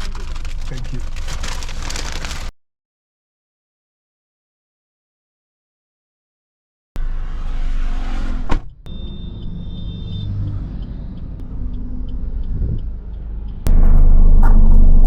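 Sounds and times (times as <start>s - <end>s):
car engine rumbling: 0.0s - 2.5s, 7.0s - 15.0s
high electronic beep: 8.9s - 11.4s.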